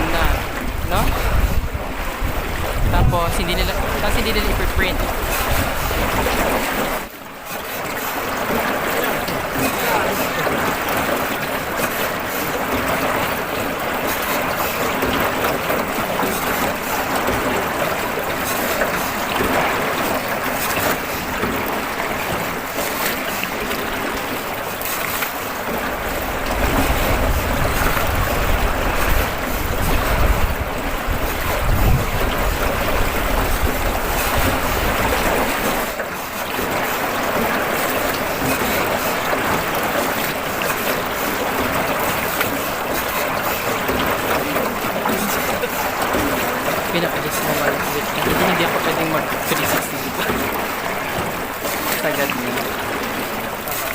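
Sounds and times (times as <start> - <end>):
wind buffeting microphone: 0.0 - 7.1, 25.9 - 36.0
rushing water: 0.0 - 53.9.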